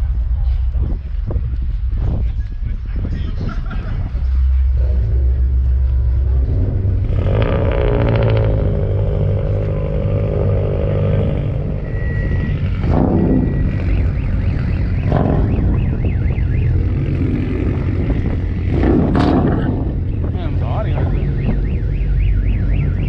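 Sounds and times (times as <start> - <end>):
car engines running: 0.0 - 23.0
sharp engine revs: 6.4 - 16.0, 16.6 - 20.5.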